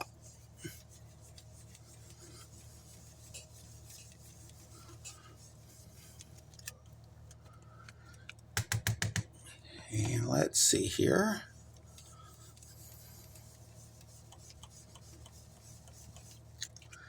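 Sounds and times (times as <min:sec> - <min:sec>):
brush strokes and taps on card: 0:00.0 - 0:06.4, 0:11.6 - 0:16.8.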